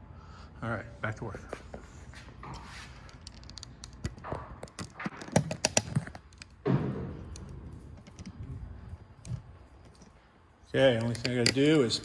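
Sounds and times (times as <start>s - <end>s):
tools clicking and knocking: 3.1s - 6.6s, 10.9s - 12.0s.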